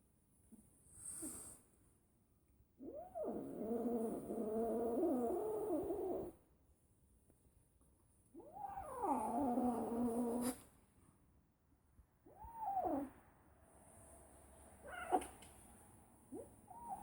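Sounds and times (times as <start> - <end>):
cat yowling: 12.3 - 13.1, 14.8 - 15.4.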